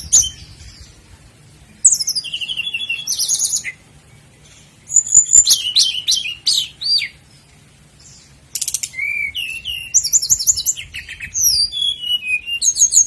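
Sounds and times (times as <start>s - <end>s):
nightingale singing: 0.0s - 13.0s.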